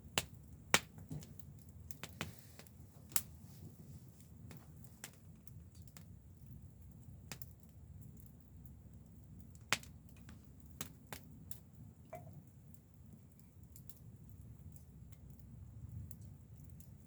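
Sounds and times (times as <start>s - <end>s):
wood fire crackling: 0.0s - 17.0s
low steady rumble: 2.7s - 17.0s.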